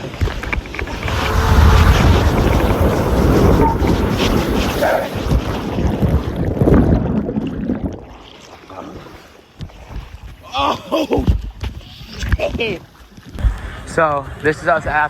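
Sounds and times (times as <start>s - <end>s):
wind rushing over microphone: 0.0s - 7.9s
running water: 0.0s - 10.0s.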